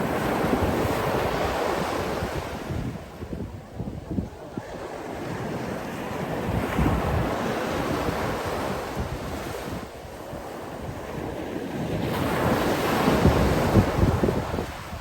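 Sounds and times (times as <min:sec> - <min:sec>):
sea waves washing in: 0:00.0 - 0:15.0
wind buffeting microphone: 0:00.0 - 0:15.0.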